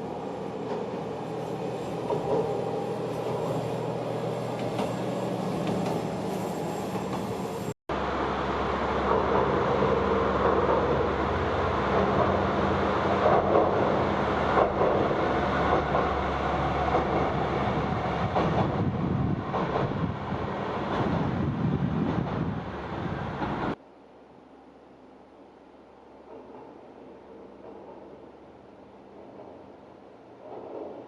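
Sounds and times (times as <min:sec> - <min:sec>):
diesel engine drone: 0:00.0 - 0:18.9
train wheel and rail noise: 0:00.0 - 0:31.0.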